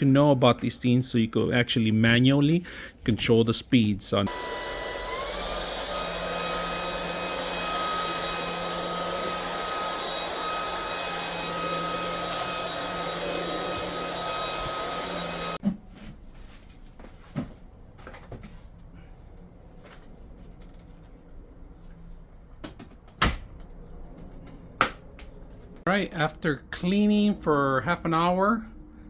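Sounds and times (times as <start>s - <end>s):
vacuum motor whining: 4.3s - 15.6s.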